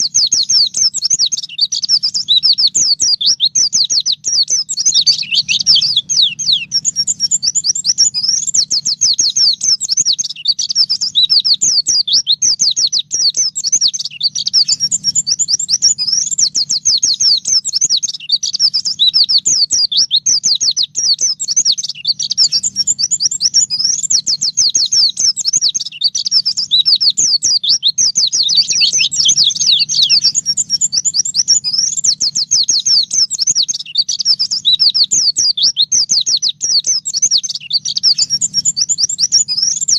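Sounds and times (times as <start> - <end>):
bird singing fast high chirps: 0.0 - 39.9
faint low hum: 1.8 - 10.1, 14.1 - 17.8, 26.5 - 33.7.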